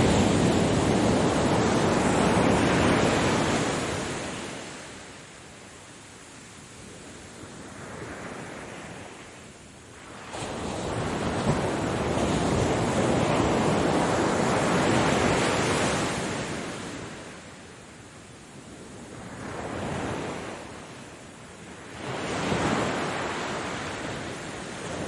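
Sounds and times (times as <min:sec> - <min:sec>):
ocean waves breaking: 0:00.0 - 0:05.2, 0:10.0 - 0:17.3.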